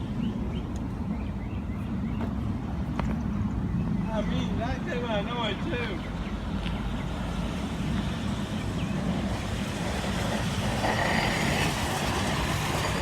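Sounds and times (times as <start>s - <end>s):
rail vehicle rumbling past: 7.1s - 13.0s.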